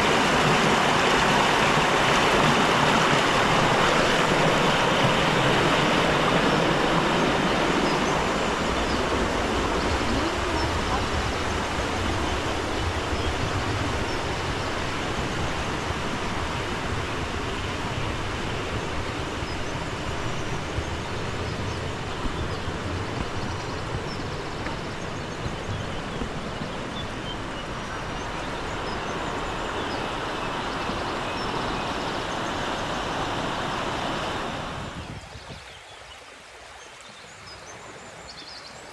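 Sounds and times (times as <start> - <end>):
fast stream rushing: 0.0 - 38.9.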